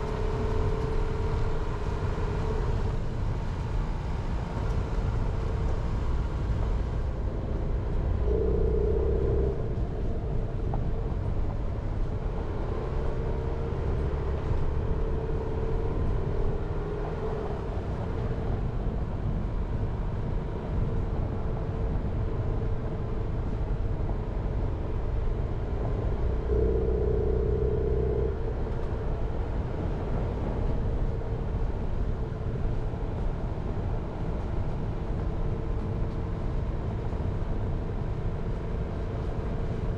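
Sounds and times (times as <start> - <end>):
car engine rumble: 0.0 - 39.9
road noise: 0.0 - 39.9.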